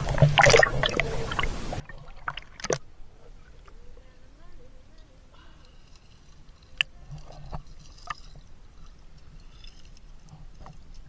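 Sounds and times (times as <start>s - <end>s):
water slaps: 0.0s - 2.8s
water splashing around swimmer: 0.0s - 3.0s.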